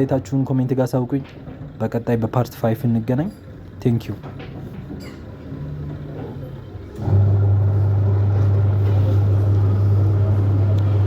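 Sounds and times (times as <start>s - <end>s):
washing machine motor humming: 0.0s - 11.0s.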